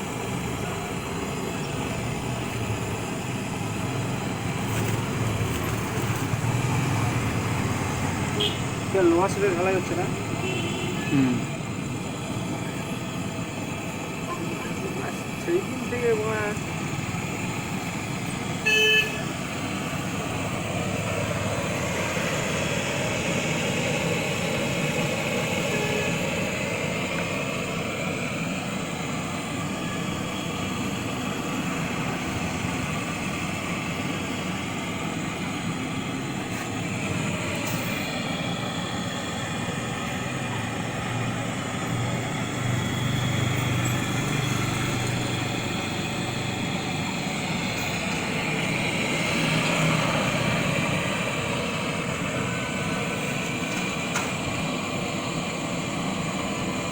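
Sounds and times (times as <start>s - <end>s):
street traffic: 0.0s - 56.9s
short vehicle horn toot: 10.4s - 11.4s.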